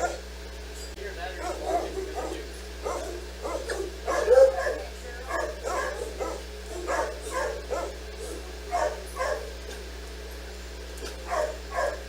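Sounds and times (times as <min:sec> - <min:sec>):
dog barking: 0:00.0 - 0:00.3, 0:01.4 - 0:09.8, 0:11.0 - 0:12.0.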